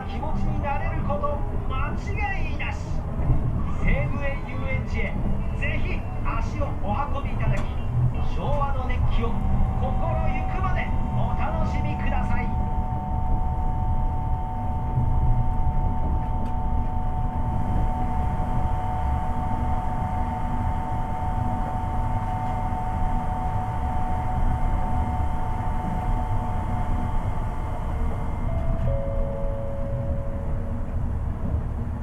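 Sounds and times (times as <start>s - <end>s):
inverter whine: 8.4s - 32.0s.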